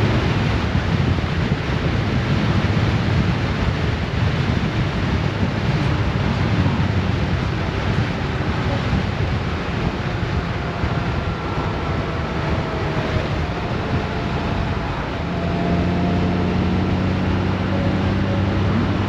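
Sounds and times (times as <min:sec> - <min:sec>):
motorcycle engine hum: 0:00.0 - 0:19.0
wind over microphone: 0:00.0 - 0:19.0.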